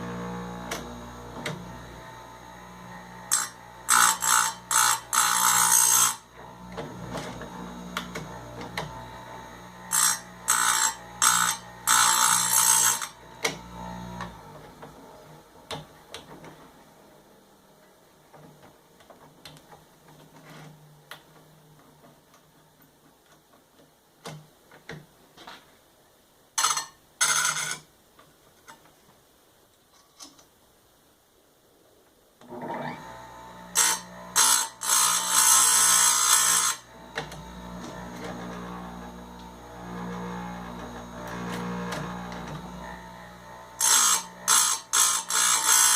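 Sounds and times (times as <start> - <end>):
grinder motor humming: 0.0 - 15.4, 32.5 - 45.9
grinding wheel hissing: 32.8 - 45.9.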